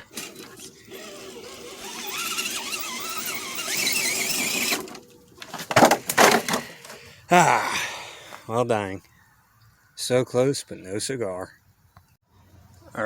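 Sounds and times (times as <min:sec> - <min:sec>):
toy car electric motor whining: 0:00.0 - 0:05.1.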